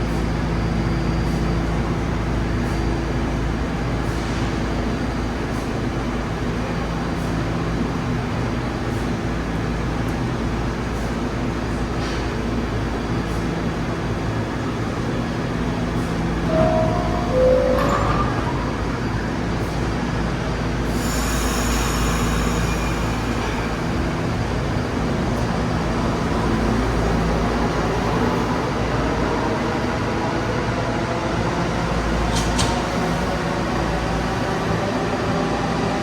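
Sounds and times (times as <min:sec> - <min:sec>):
subway train rumbling: 0:00.0 - 0:36.0
metallic wheel squeal: 0:16.5 - 0:19.6.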